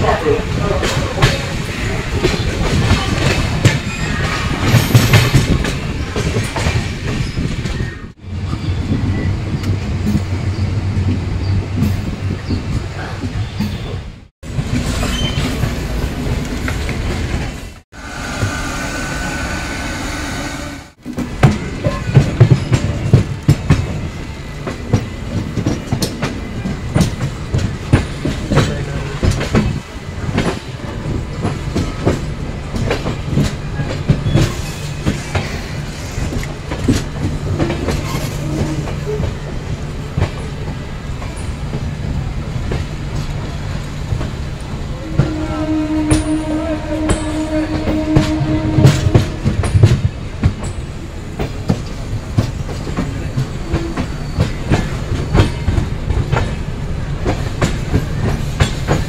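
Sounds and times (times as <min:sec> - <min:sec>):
train wheels clacking: 0:00.0 - 0:08.2, 0:21.0 - 0:59.0
train rumble: 0:00.0 - 0:59.0
train horn blast: 0:44.9 - 0:49.8.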